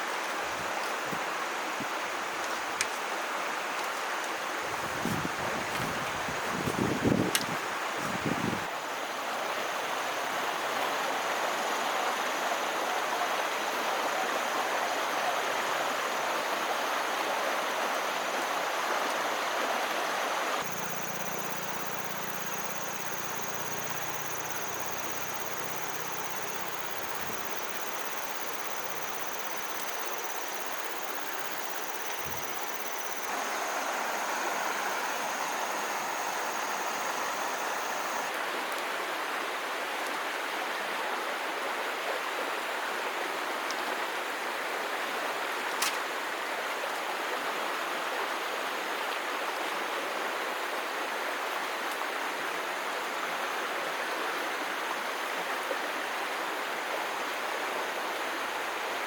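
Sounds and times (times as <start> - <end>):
rushing water: 0.0 - 59.0
high insect-like buzz: 20.6 - 38.3.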